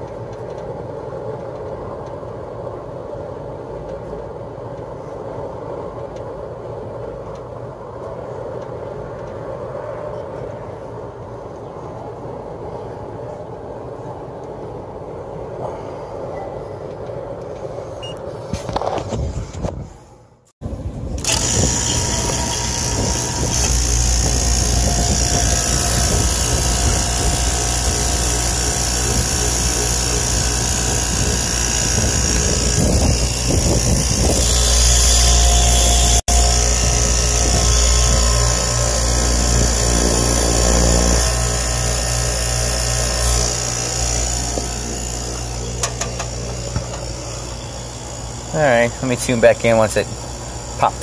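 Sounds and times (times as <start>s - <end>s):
vacuum pump running: 21.1s - 51.0s.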